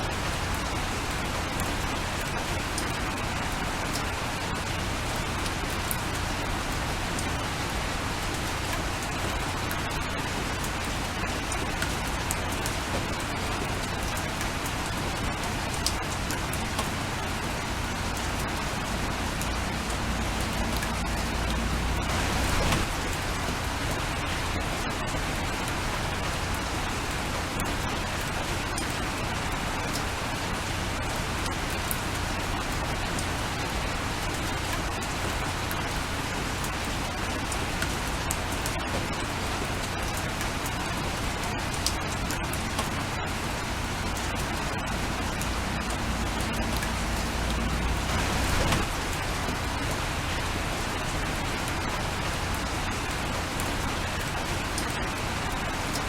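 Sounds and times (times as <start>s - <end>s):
raindrops ticking on a window: 0.0s - 56.0s
steady rain: 0.0s - 56.0s
low rumble: 18.6s - 24.7s.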